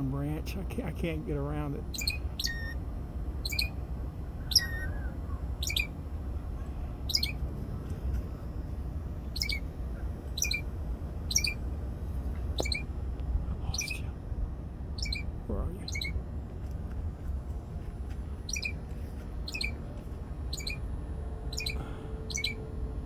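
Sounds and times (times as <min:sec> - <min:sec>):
songbird calling high note: 0:01.8 - 0:02.8, 0:03.4 - 0:06.0, 0:07.0 - 0:07.4, 0:09.2 - 0:09.7, 0:10.3 - 0:11.6, 0:12.6 - 0:12.9, 0:13.7 - 0:14.0, 0:15.0 - 0:16.2, 0:18.4 - 0:18.8, 0:19.4 - 0:19.8, 0:20.5 - 0:23.0.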